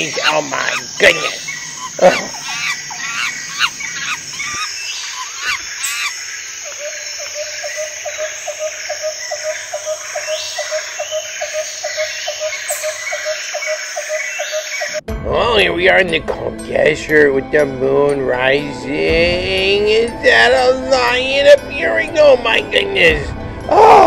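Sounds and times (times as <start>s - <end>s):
pulsing animal call: 0.0s - 15.0s
birds chirping: 0.0s - 24.0s.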